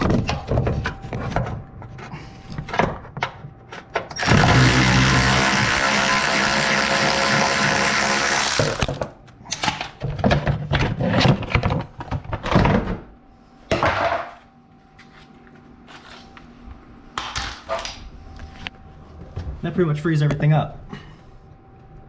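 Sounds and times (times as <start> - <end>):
small power tool whirring: 4.1 - 9.0.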